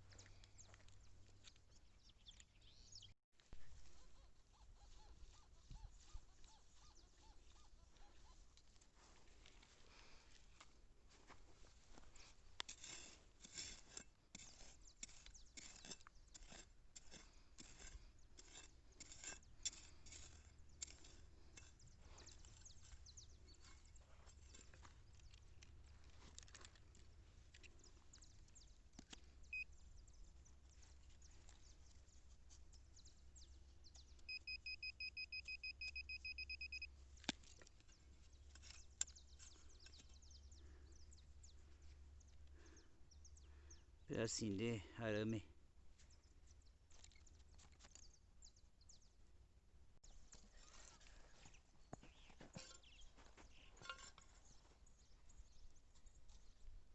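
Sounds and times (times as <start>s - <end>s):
digging scraping and clicking: 11.8s - 29.6s, 36.0s - 42.8s, 46.0s - 48.2s, 50.0s - 55.0s
metal detector high beeps: 34.2s - 36.9s
short beep: 34.3s - 36.9s.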